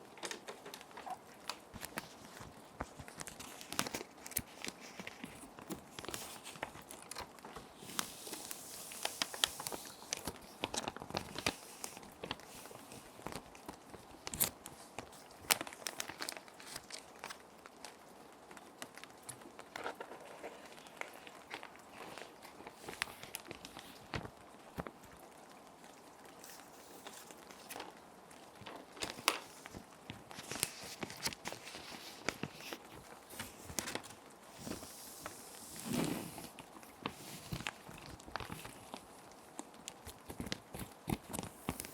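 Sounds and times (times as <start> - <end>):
plastic sheet protectors crinkling: 0.0 - 18.0, 18.6 - 25.0, 26.3 - 41.9
gentle rain: 0.0 - 41.9.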